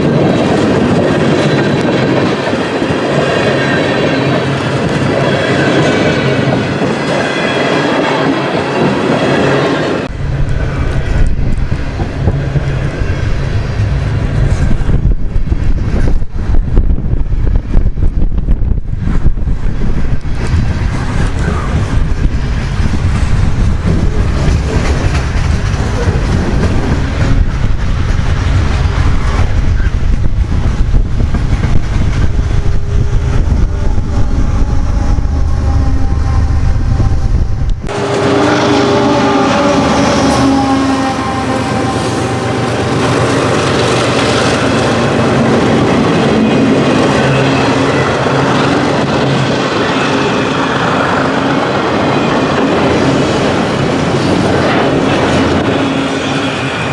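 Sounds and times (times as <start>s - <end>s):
deep heavy train rumble: 0.0s - 56.9s
train wheels clacking over rail joints: 20.4s - 34.0s.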